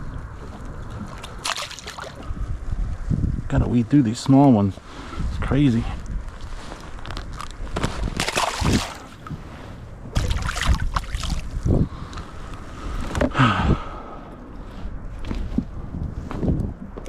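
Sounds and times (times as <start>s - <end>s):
steady wind hiss: 0.0s - 17.0s
water rushing: 1.0s - 2.3s, 8.2s - 9.3s.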